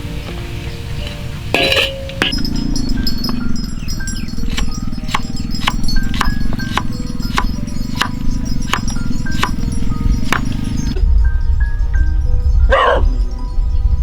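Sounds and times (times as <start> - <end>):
background music: 0.0 - 14.0
knife chopping on wooden board: 4.4 - 9.6, 10.3 - 10.6.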